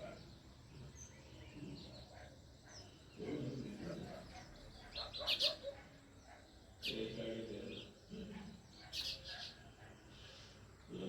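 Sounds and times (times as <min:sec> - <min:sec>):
sparrows chirping: 0:00.0 - 0:11.0.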